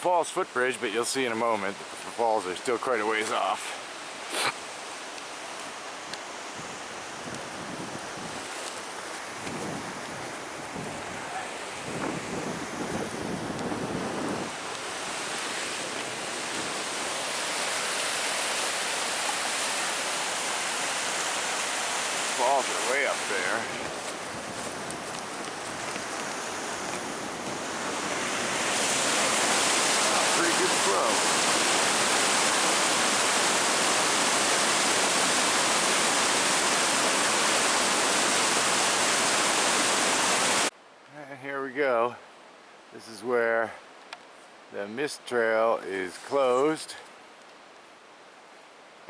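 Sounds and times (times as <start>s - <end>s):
river rushing over rapids: 0.4s - 40.7s.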